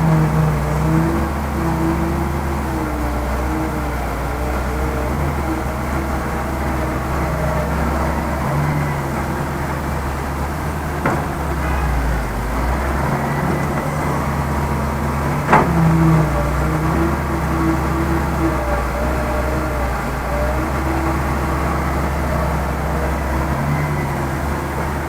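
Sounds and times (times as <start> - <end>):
heavy diesel engine rumbling: 0.0 - 25.0
sharp knocks: 10.8 - 12.2, 15.2 - 16.4.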